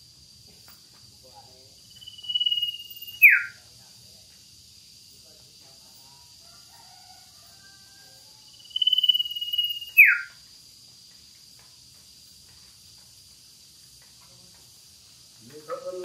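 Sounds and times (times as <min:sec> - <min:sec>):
bird whistling song: 0:02.0 - 0:03.6, 0:08.6 - 0:10.4.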